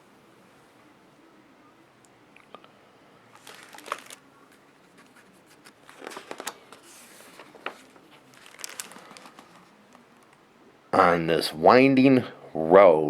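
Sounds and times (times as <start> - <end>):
book pages rustling: 3.4 - 10.4.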